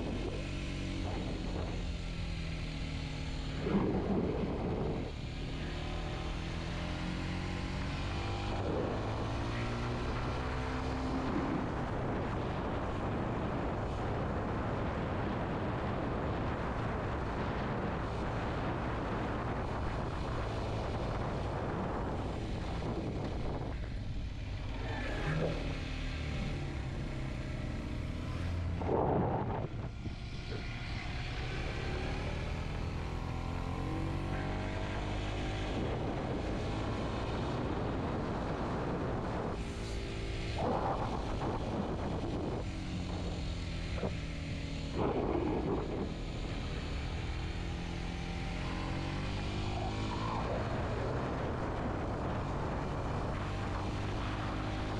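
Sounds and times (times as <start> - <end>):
wind noise on microphone: 0.0 - 2.7, 3.5 - 6.6, 7.5 - 54.9
motorcycle engine revving: 0.0 - 54.9.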